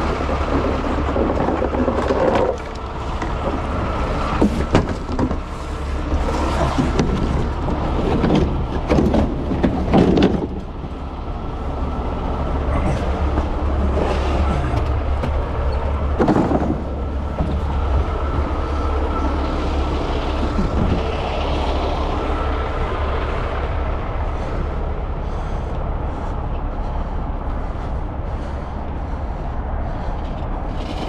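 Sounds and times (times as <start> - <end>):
clatter: 0.0 - 11.0, 12.8 - 24.6, 29.9 - 31.0
road rumble: 0.0 - 31.0
tow truck engine running: 0.0 - 31.0.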